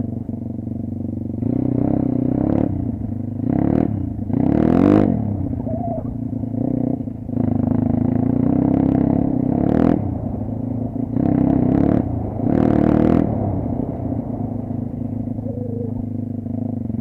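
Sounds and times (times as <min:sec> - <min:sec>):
dirt bike engine revving: 0:01.4 - 0:17.0.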